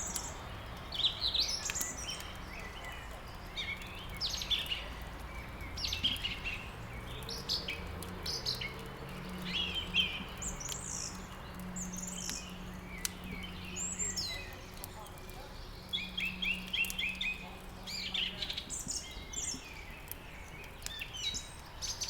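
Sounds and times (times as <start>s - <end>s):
faint sharp clicks: 0.0s - 1.0s, 1.6s - 3.0s, 3.8s - 13.5s, 16.7s - 17.7s, 18.8s - 21.4s
songbirds chirping and singing: 0.0s - 22.0s.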